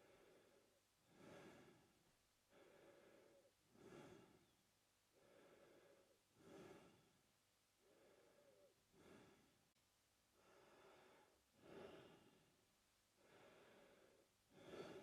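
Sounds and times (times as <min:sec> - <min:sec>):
man breathing through mouth: 0:00.0 - 0:01.9, 0:02.5 - 0:04.6, 0:05.2 - 0:07.2, 0:10.4 - 0:12.4, 0:13.2 - 0:15.0.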